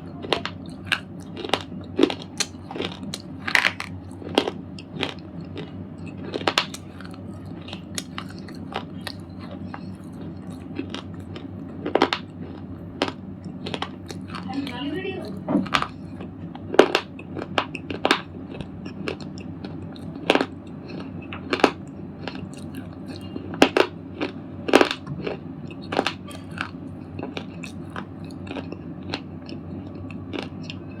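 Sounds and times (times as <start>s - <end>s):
steady low hum: 0.0s - 31.0s
slate ball crunching and cracking: 0.3s - 14.5s.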